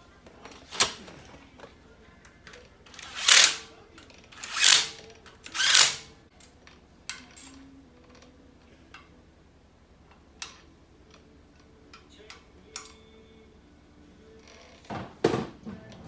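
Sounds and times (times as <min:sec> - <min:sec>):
metal parts clicking and tapping: 0:00.5 - 0:01.3, 0:02.5 - 0:06.1.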